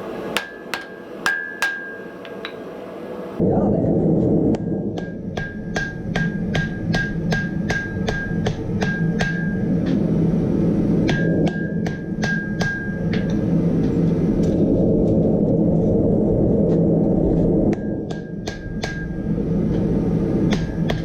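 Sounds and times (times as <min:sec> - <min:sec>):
hammer striking hot metal on anvil: 0:00.0 - 0:02.8, 0:05.0 - 0:09.7, 0:11.1 - 0:13.0
steady low rumble: 0:00.0 - 0:21.0.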